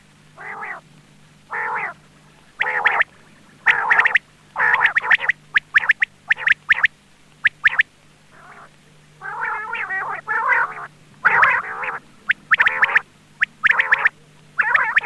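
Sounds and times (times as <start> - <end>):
quail lure call: 0.4 - 0.8, 1.5 - 15.0.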